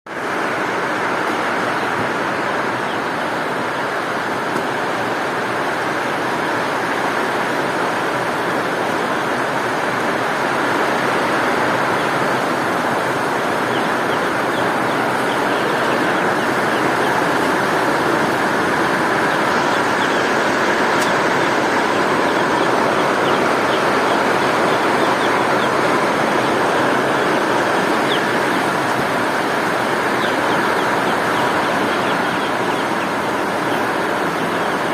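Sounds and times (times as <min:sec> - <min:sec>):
heavy rain: 0:00.1 - 0:34.9.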